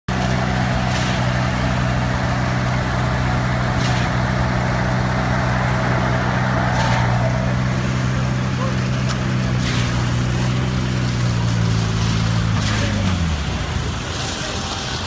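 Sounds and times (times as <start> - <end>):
heavy diesel engine humming: 0.1 - 15.0.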